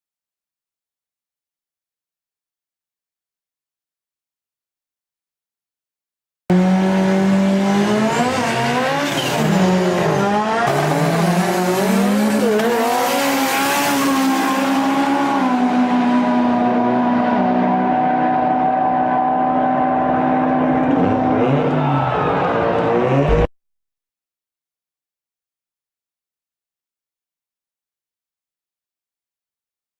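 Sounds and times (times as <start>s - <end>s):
race car engines revving: 6.5s - 23.5s.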